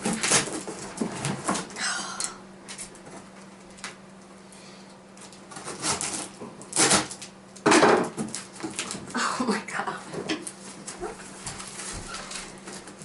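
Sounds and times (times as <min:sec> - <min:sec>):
scissors cutting packing tape: 0:00.0 - 0:00.7, 0:05.5 - 0:07.3
packing tape tearing: 0:00.0 - 0:01.7, 0:05.2 - 0:07.3, 0:08.0 - 0:09.1.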